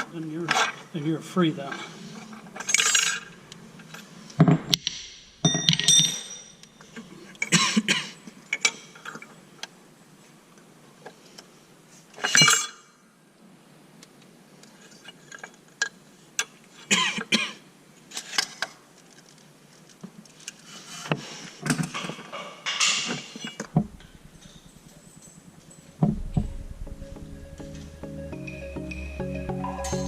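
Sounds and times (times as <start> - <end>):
metal tools clinking: 1.7 - 3.4, 5.4 - 7.1, 22.7 - 26.0
background music: 25.9 - 30.0.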